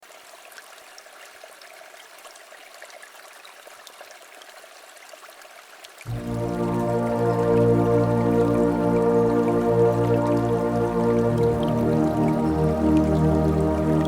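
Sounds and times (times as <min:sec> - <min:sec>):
water trickling and babbling: 0:00.0 - 0:14.0
soft new-age music: 0:06.1 - 0:14.0.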